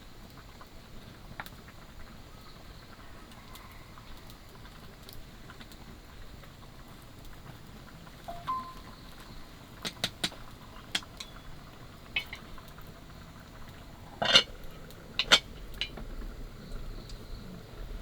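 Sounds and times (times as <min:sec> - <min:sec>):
hard objects clicking and knocking: 0:12.2 - 0:12.5, 0:15.2 - 0:16.0.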